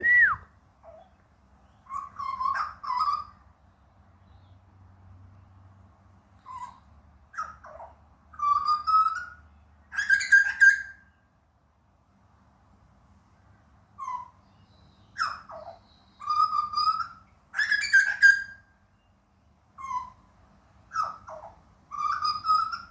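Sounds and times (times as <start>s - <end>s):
bird whistling calls: 0.0s - 0.5s, 8.4s - 9.4s, 10.0s - 11.2s, 14.0s - 18.7s, 20.9s - 22.9s.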